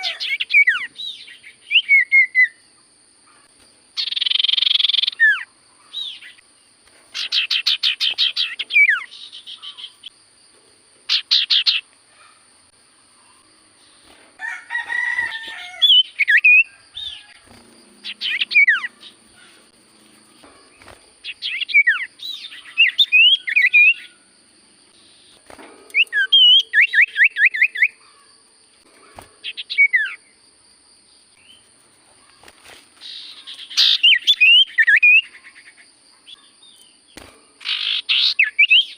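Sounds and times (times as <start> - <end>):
bird singing trilled phrases: 0.0 - 2.6, 4.0 - 6.4, 7.1 - 10.1, 11.1 - 11.9, 15.8 - 17.4, 18.0 - 19.7, 20.3 - 24.2, 25.0 - 28.0, 29.4 - 30.4, 33.0 - 38.9.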